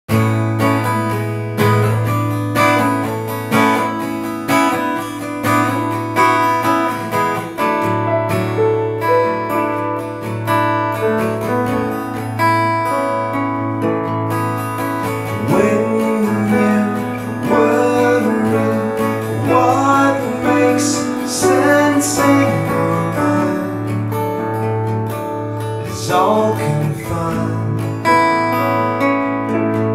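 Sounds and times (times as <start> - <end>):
acoustic guitar strumming: 0.1 - 29.9
piano: 0.1 - 29.9.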